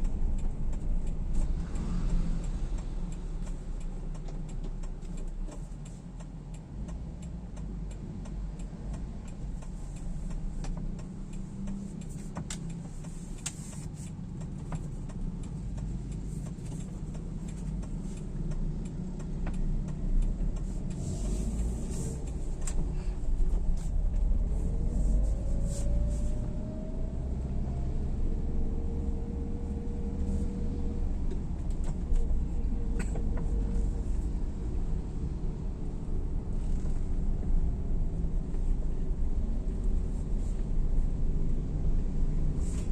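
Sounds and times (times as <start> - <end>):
scattered ticks: 0.0 - 26.1
vehicle engine and road rumble: 0.0 - 42.9.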